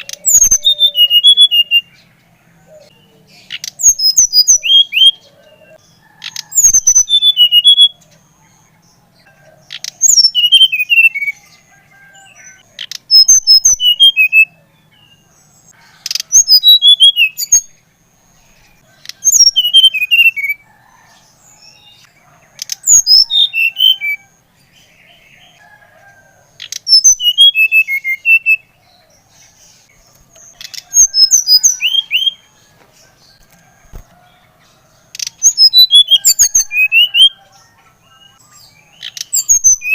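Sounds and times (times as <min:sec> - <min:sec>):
flycatcher singing high chirps: 0:00.0 - 0:02.0.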